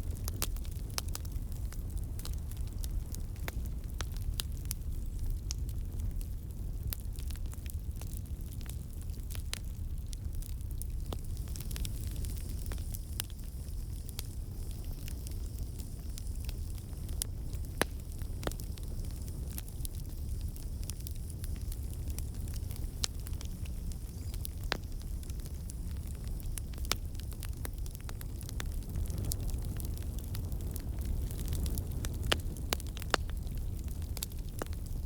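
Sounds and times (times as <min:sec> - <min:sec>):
campfire rumble: 0:00.0 - 0:35.0
fire pops and crackles: 0:00.0 - 0:35.0.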